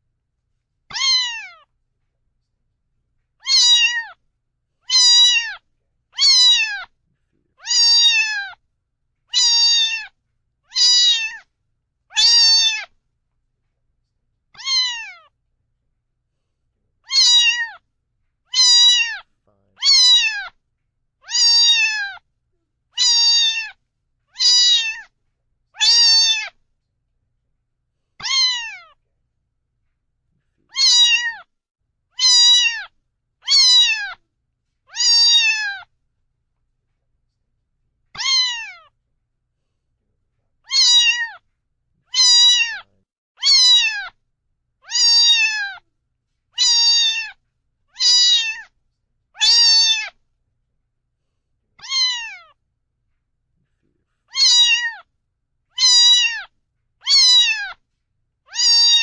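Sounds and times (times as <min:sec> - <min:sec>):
cat meowing: 0:00.9 - 0:01.7, 0:03.4 - 0:04.2, 0:04.9 - 0:05.6, 0:06.2 - 0:07.0, 0:07.6 - 0:08.6, 0:09.3 - 0:11.5, 0:12.1 - 0:13.0, 0:14.6 - 0:15.3, 0:17.0 - 0:17.8, 0:18.5 - 0:20.6, 0:21.2 - 0:22.2, 0:23.0 - 0:25.1, 0:25.8 - 0:26.6, 0:28.2 - 0:29.0, 0:30.7 - 0:31.5, 0:32.2 - 0:34.2, 0:34.9 - 0:35.9, 0:38.2 - 0:38.9, 0:40.7 - 0:41.4, 0:42.1 - 0:44.2, 0:44.8 - 0:45.8, 0:46.6 - 0:48.8, 0:49.4 - 0:50.2, 0:51.8 - 0:52.6, 0:54.3 - 0:55.1, 0:55.7 - 0:57.8, 0:58.5 - 0:59.0.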